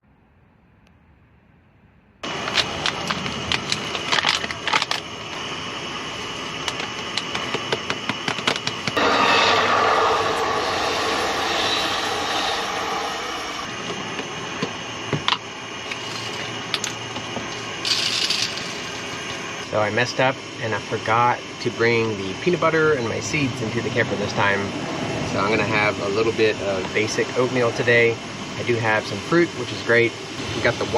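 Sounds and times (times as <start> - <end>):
steady hiss: 2.2 - 24.6
rushing noise: 8.9 - 16.7.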